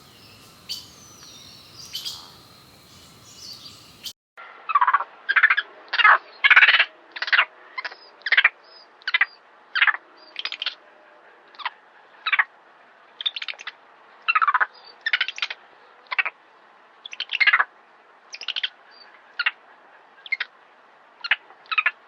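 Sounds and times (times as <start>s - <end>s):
bird calling in harsh bursts: 0.0s - 4.1s.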